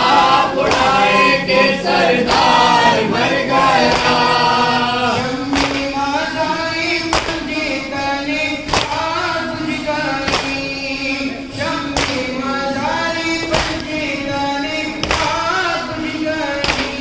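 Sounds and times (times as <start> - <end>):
group chanting in held notes: 0.0 - 17.0
chest-beating thumps: 3.5 - 6.2.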